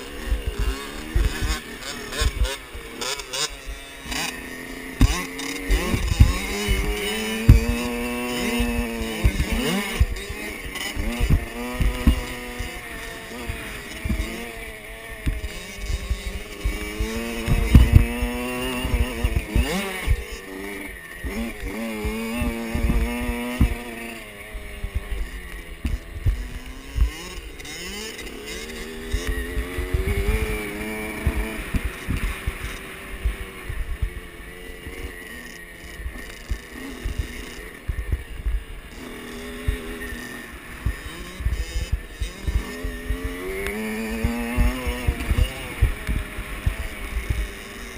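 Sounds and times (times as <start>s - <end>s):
dirt bike engines revving: 0.0s - 47.9s
low thumps and knocks: 15.2s - 20.2s.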